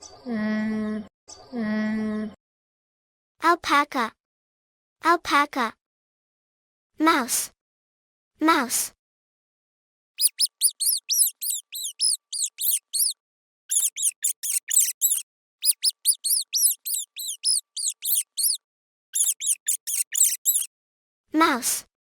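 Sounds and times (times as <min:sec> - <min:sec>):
mouse squeaking: 0:10.2 - 0:18.6, 0:19.2 - 0:20.7.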